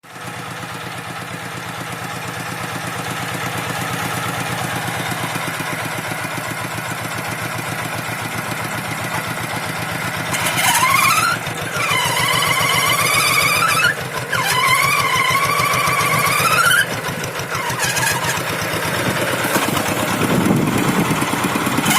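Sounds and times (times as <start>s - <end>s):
tractor engine running: 0.0s - 21.9s
high wavering squeal: 9.1s - 18.6s.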